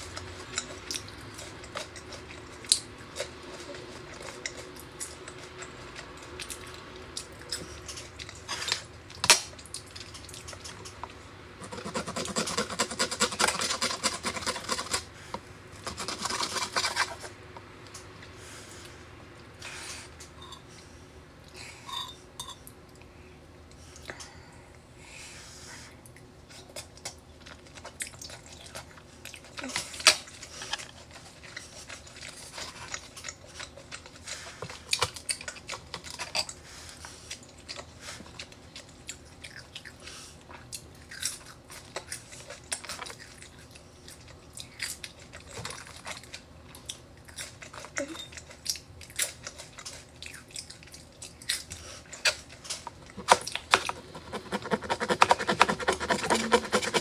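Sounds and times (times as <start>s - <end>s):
chewing and mouth sounds: 0.0s - 11.3s, 26.0s - 57.0s
knife sawing steak on wooden board: 54.1s - 57.0s.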